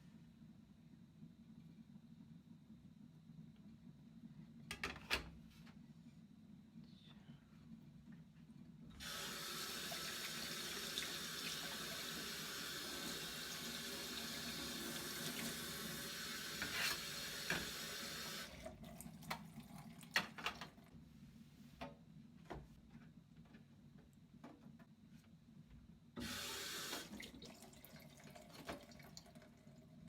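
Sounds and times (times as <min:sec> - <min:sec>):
tap running into sink: 0:16.5 - 0:17.8.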